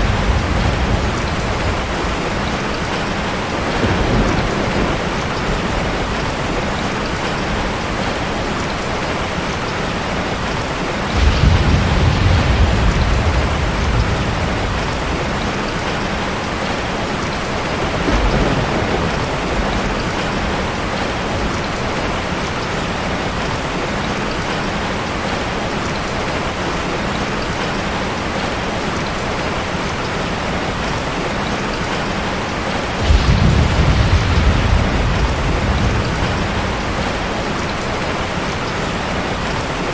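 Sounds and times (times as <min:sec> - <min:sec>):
thunder rumbling: 0:00.0 - 0:22.4, 0:32.6 - 0:39.9
heavy rain falling: 0:00.0 - 0:39.9.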